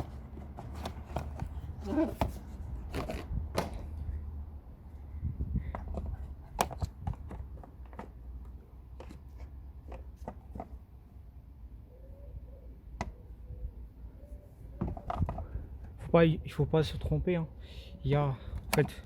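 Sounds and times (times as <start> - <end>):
air filter clicks and rustles: 0.0 - 4.1, 5.6 - 10.8, 18.4 - 19.0.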